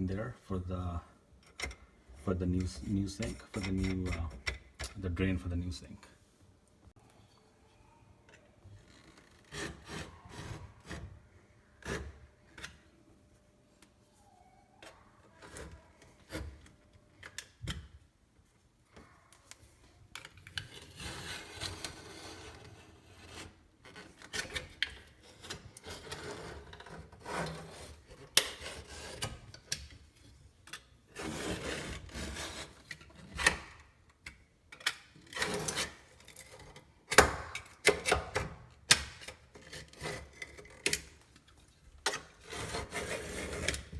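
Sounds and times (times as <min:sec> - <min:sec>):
scraping and rubbing: 0:02.2 - 0:04.6, 0:08.7 - 0:12.4, 0:20.2 - 0:30.5, 0:31.1 - 0:33.8, 0:35.2 - 0:36.9, 0:39.3 - 0:43.9.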